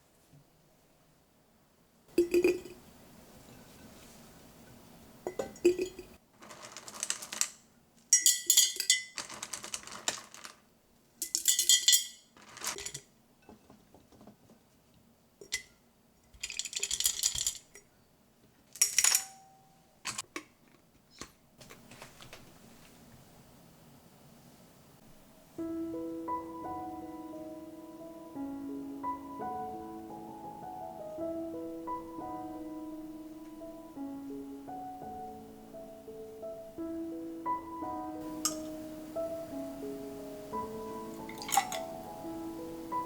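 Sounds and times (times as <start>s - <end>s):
glass and utensils clinking: 2.1s - 2.8s, 5.3s - 7.5s, 8.1s - 10.5s, 11.2s - 13.7s, 15.4s - 15.7s, 18.8s - 20.2s, 38.2s - 38.9s, 40.9s - 42.0s.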